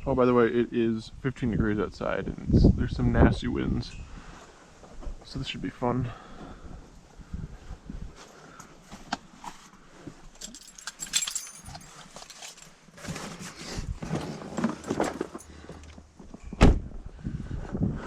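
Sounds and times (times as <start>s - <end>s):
metallic clinks and jangling: 10.3s - 12.8s
loud thump: 16.6s - 16.9s.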